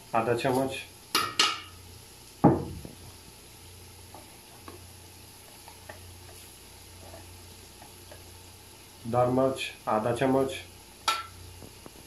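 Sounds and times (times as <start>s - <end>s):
sauce frying in a pot: 0.0s - 12.0s
dull thump: 2.4s - 3.0s.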